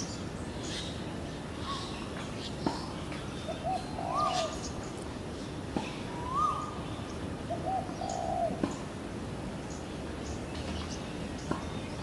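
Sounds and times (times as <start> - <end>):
birds whistling and cooing: 1.6 - 8.9.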